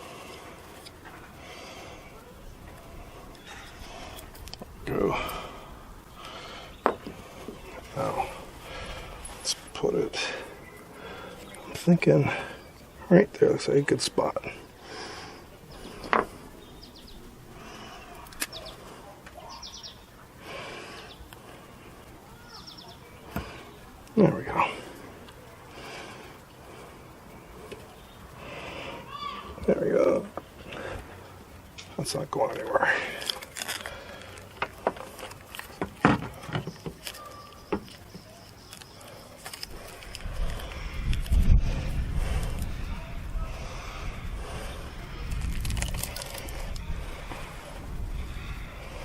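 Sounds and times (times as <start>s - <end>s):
bird chirping: 15.7s - 17.3s, 17.9s - 20.2s, 22.5s - 23.9s, 36.6s - 40.3s
light clicks and knocks of parts: 31.7s - 41.4s.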